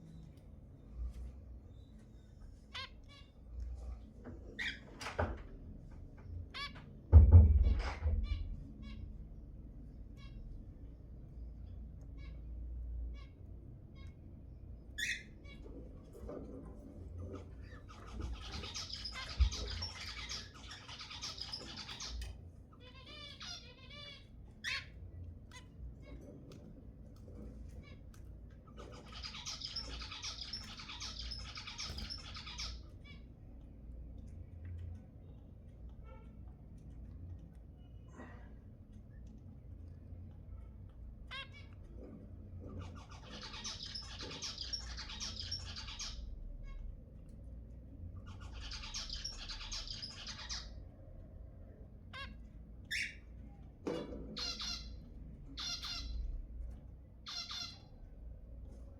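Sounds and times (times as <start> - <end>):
zebra finches chirping: 1.7 - 3.4, 4.5 - 5.0, 14.8 - 16.6, 17.3 - 26.6, 27.2 - 33.6, 42.6 - 47.0, 48.2 - 50.8, 52.1 - 53.4, 54.3 - 56.6, 57.2 - 58.0.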